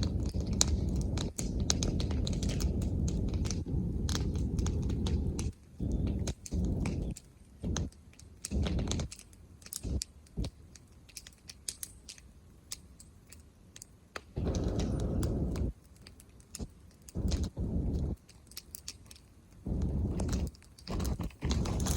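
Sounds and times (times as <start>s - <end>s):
low rumbling noise: 0.0s - 7.9s, 8.5s - 9.1s, 14.4s - 15.8s, 16.5s - 18.2s, 19.6s - 21.9s
bonfire crackling and popping: 0.0s - 21.9s.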